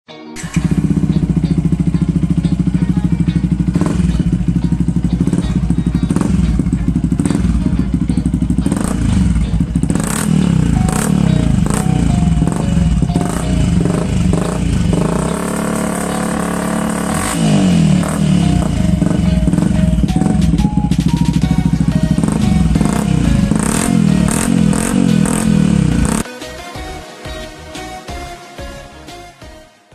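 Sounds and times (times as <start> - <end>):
motorcycle engine revving: 0.4 - 26.3.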